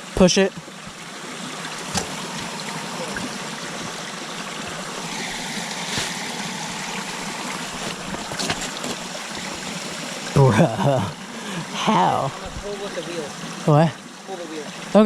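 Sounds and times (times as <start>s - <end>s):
steady rushing noise: 4.9s - 10.0s.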